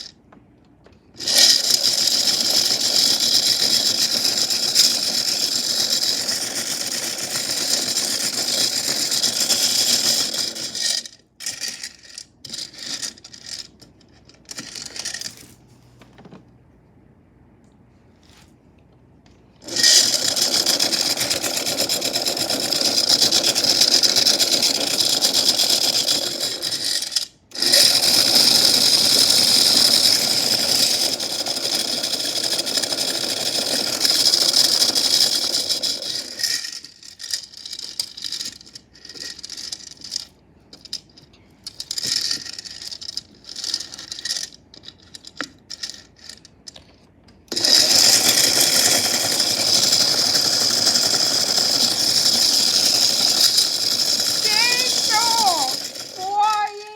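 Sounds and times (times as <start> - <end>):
small toy motor running: 1.2 - 13.7, 19.6 - 41.0, 41.7 - 46.4, 47.5 - 56.9
chains rattling in drum: 47.6 - 56.9.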